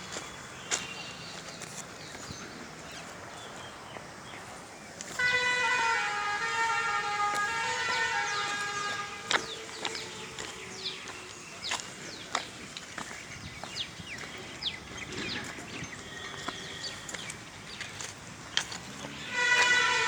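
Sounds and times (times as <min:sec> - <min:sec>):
train horn blast: 0:05.1 - 0:11.5, 0:19.0 - 0:20.0.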